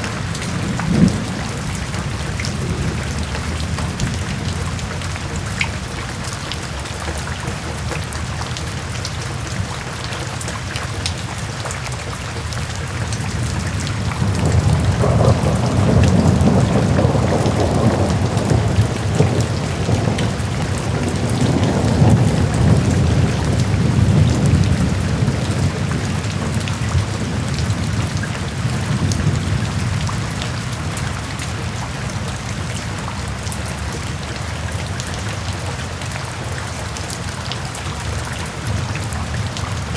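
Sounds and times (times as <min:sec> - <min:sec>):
thunder rumbling: 0:00.0 - 0:06.2, 0:13.2 - 0:34.2
rain falling: 0:00.0 - 0:39.9.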